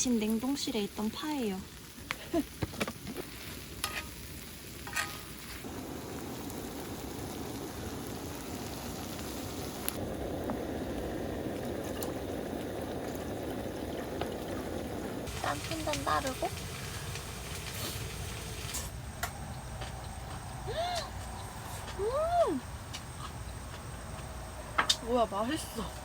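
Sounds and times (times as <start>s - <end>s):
squid sizzling in a hot pan: 0.0s - 18.9s.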